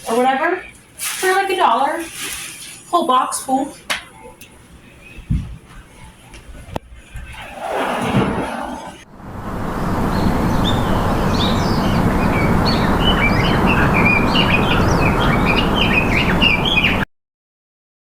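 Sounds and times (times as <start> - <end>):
birds chirping: 4.8 - 6.3.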